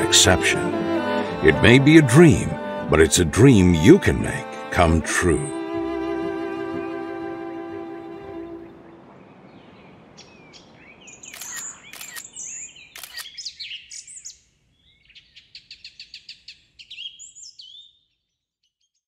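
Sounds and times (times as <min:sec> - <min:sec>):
songbirds chirping and whistling: 0:08.6 - 0:19.0
fast bird trill: 0:11.1 - 0:14.3.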